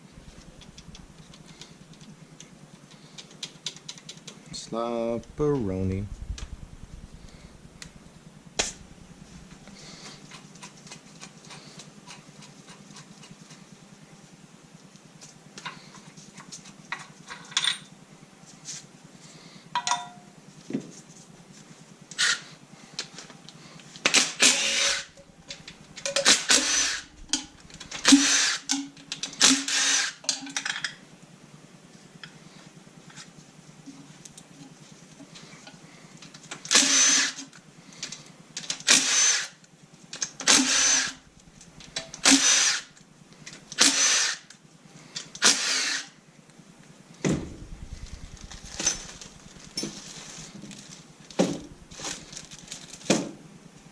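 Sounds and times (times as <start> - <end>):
clicks and clinks of parts: 15.2 - 17.9, 19.8 - 20.3, 23.0 - 31.0
power tool bursts: 24.1 - 25.2, 26.1 - 30.3, 36.7 - 37.4, 38.8 - 39.6, 40.4 - 41.3, 41.9 - 42.9, 43.8 - 44.5, 45.4 - 46.2.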